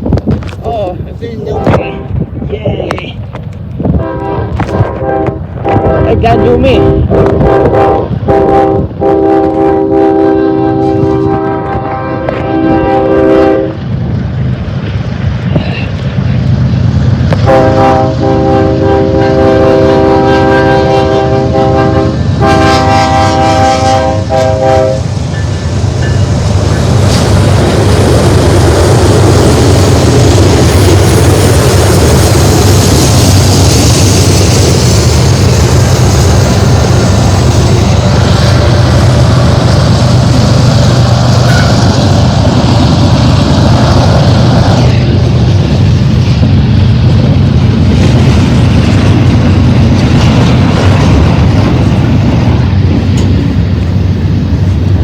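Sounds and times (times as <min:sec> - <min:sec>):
train wheel and rail noise: 0:00.0 - 0:55.0
locomotive air horn blasts: 0:04.0 - 0:13.8, 0:17.4 - 0:25.1.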